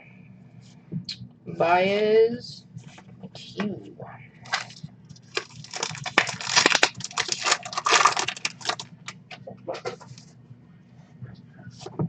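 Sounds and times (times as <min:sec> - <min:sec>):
foil wrapper crinkling and tearing: 0:04.4 - 0:09.2
cards clicking and rustling: 0:04.5 - 0:08.9.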